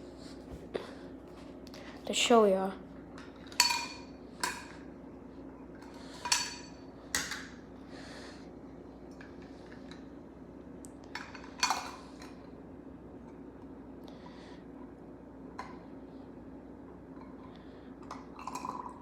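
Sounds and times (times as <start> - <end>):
hard objects clinking on a dish: 3.2 - 4.8, 6.2 - 7.5.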